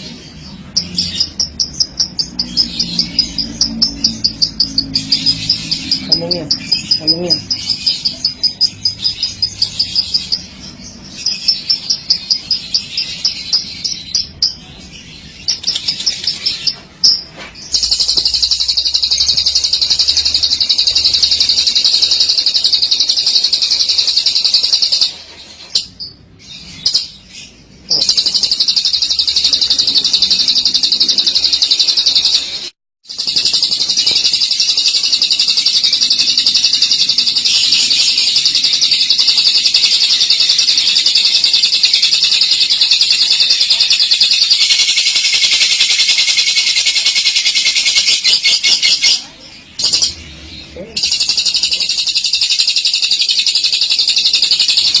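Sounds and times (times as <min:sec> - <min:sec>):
lovebird rolling chatter: 0:15.4 - 0:25.8, 0:27.9 - 0:50.2.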